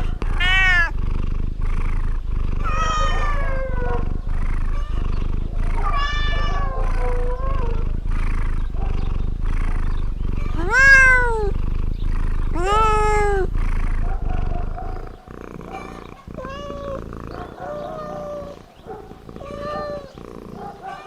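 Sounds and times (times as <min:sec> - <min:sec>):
cat meowing: 0:00.0 - 0:00.9, 0:02.6 - 0:04.0, 0:04.7 - 0:05.0, 0:05.6 - 0:07.9, 0:10.4 - 0:11.6, 0:12.5 - 0:13.6, 0:15.7 - 0:21.0
cat purring: 0:00.0 - 0:21.0.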